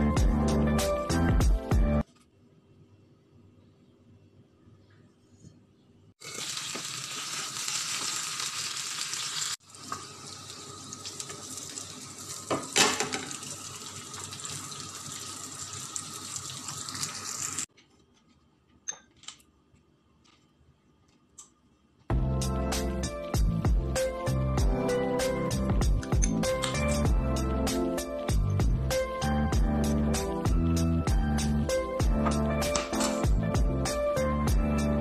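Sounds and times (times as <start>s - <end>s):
chicken sizzling in a pan: 6.2s - 17.7s.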